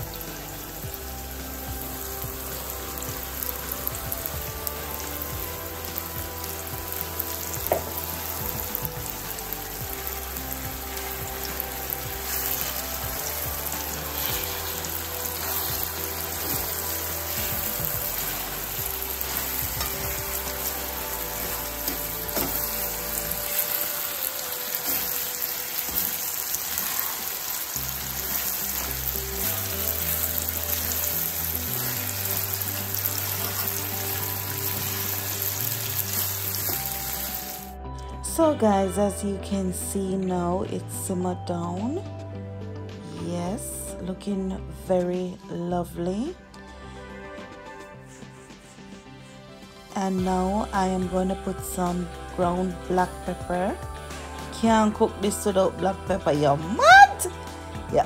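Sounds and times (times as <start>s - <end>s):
food sizzling in a frying pan: 0.0s - 37.8s, 49.7s - 58.0s
fork stirring food in pan: 24.7s - 36.9s.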